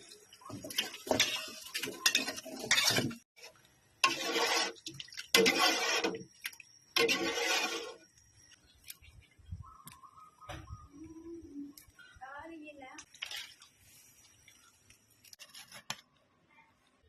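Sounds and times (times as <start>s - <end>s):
pots and utensils clattering: 0.4s - 3.2s, 4.0s - 6.3s, 7.0s - 8.0s.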